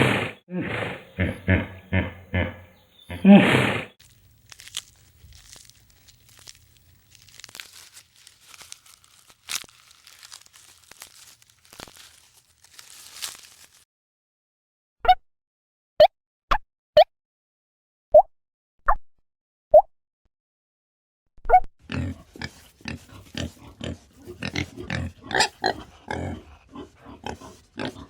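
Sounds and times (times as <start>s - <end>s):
animal calls: 0.0s - 4.0s
crunching and rustling: 3.1s - 13.8s, 22.1s - 26.3s.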